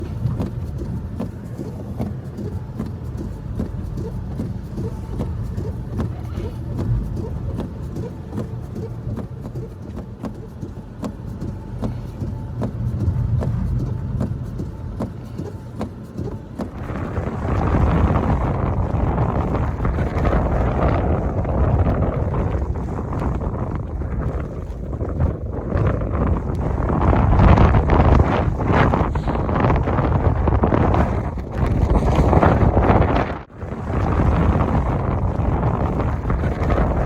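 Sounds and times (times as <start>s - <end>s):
blizzard wind rumbling: 0.0s - 37.0s.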